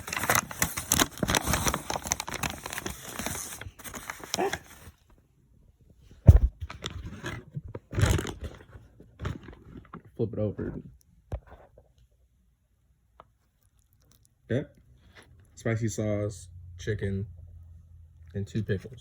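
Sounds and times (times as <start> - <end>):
paper wrapper crinkling: 0.0 - 5.0, 6.7 - 10.1.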